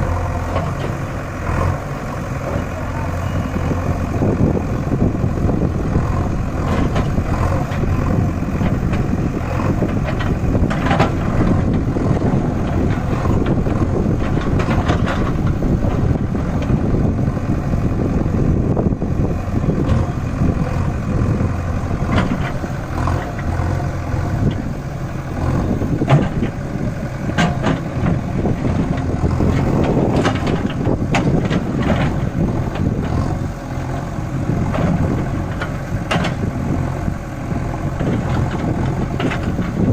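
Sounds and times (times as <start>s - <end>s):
tractor diesel engine running: 0.0s - 39.9s
rattles and knocks: 9.7s - 16.8s, 21.8s - 23.4s, 25.8s - 26.6s, 27.2s - 33.2s, 34.6s - 36.5s, 37.9s - 39.8s.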